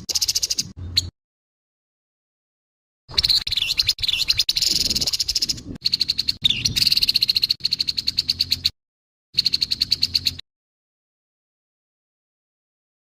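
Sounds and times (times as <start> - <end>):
bird harsh rattling call: 0.0 - 0.7, 3.1 - 8.7, 9.4 - 10.4.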